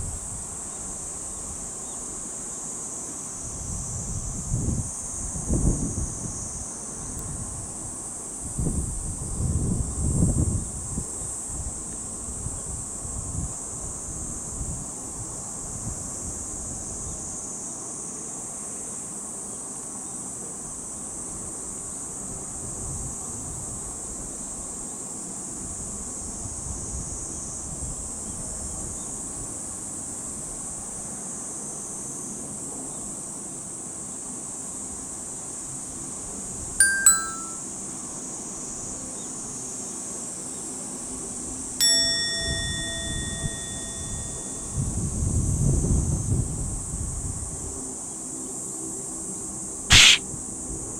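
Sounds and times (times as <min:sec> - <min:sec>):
ding-dong chime: 0:36.8 - 0:37.6, 0:41.8 - 0:44.9.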